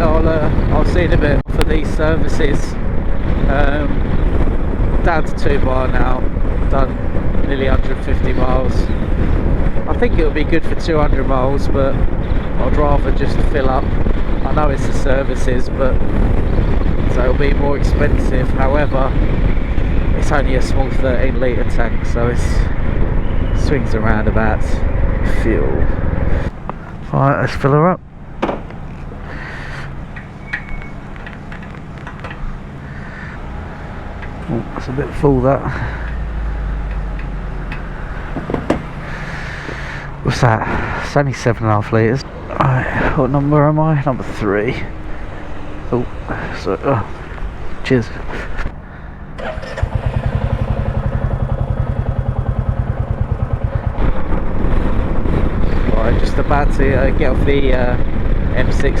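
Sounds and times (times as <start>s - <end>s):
engine revving: 28.8s - 40.6s, 48.7s - 59.0s
short beep: 30.4s - 31.0s
motorcycle engine starting and idling: 49.2s - 56.2s.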